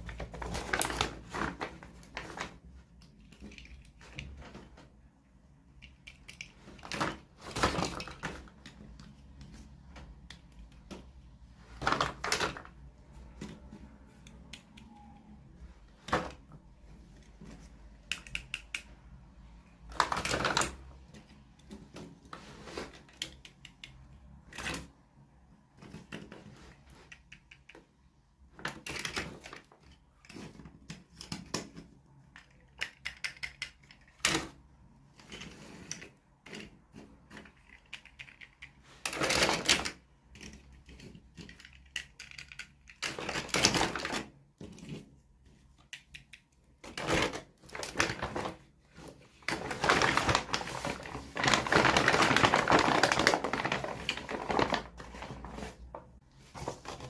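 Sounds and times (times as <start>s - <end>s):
packaging crinkling: 0.0s - 4.6s, 49.4s - 56.0s
packaging rustling: 0.0s - 4.8s, 19.8s - 21.0s, 46.8s - 57.0s
plastic parts clicking and tapping: 0.0s - 15.2s, 16.0s - 25.0s, 25.7s - 54.8s.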